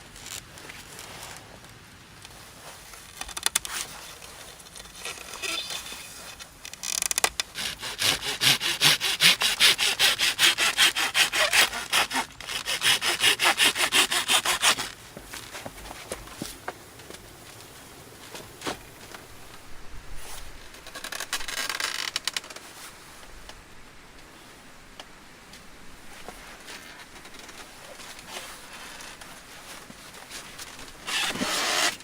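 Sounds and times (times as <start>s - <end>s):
hand saw cutting wood: 5.0s - 6.4s, 7.3s - 15.0s, 30.6s - 32.0s.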